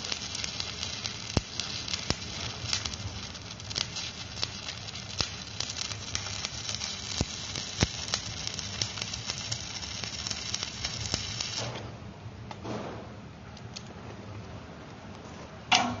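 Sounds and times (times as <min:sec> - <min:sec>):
arc welding crackle and pops: 0:00.0 - 0:11.9.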